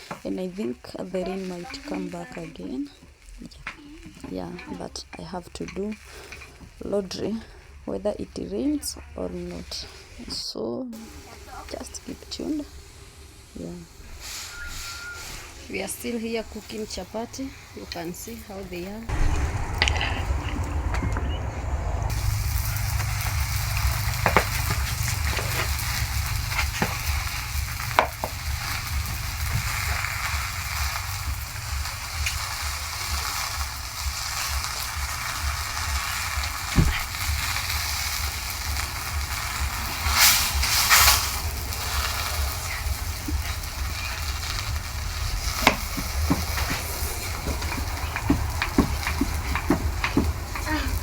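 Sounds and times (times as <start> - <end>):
flatbread sizzling on pan: 0.0 - 8.6, 9.4 - 10.3, 11.0 - 20.6, 22.1 - 51.0
low rumble: 19.0 - 51.0.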